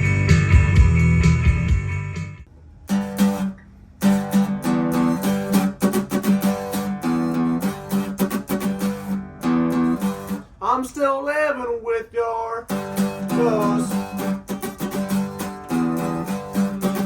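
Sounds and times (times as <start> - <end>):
music: 0.0 - 10.4, 12.7 - 17.0
guitar strumming chords: 2.9 - 11.0, 12.7 - 17.0.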